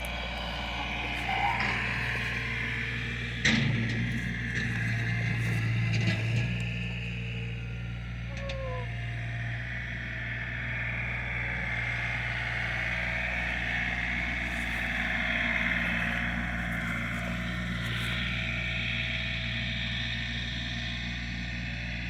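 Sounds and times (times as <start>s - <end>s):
engine running steadily: 0.0s - 22.0s
short falling squeak: 8.3s - 8.9s.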